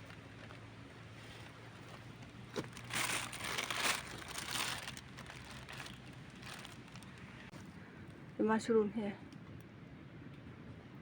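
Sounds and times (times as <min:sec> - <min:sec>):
crunching through leaf litter: 0:01.2 - 0:07.5.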